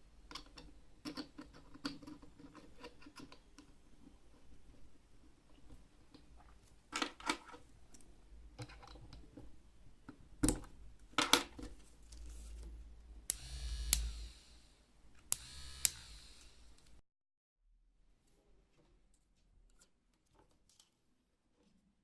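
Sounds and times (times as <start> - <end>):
small parts clicking and tapping: 0.3 - 3.8
switch click: 13.3 - 14.2
small electric motor whirring: 13.3 - 17.0.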